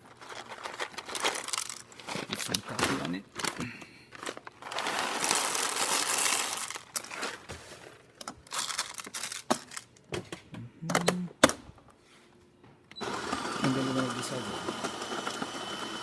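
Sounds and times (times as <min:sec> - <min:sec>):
coffee beans rustling: 0:00.0 - 0:09.9.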